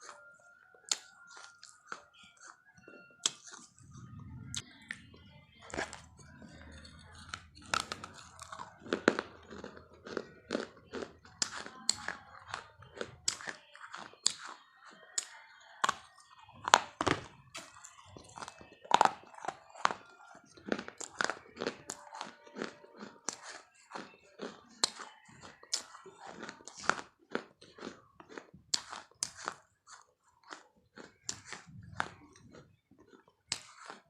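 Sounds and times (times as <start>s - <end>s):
person chewing crunchy food: 0.0s - 34.0s.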